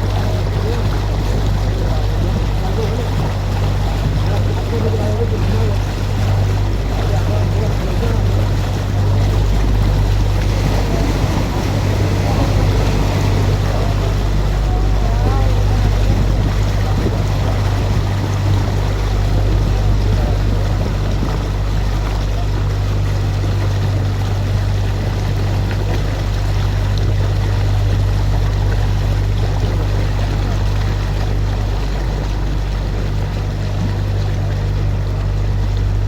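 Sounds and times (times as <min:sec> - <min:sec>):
boat motor humming: 0:00.0 - 0:36.0
water wash: 0:00.0 - 0:36.0
wind noise: 0:08.3 - 0:22.0.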